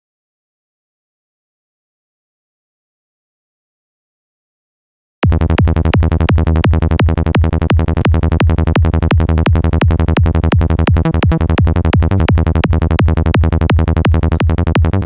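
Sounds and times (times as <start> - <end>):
fast synthesizer bass line: 5.2 - 15.0.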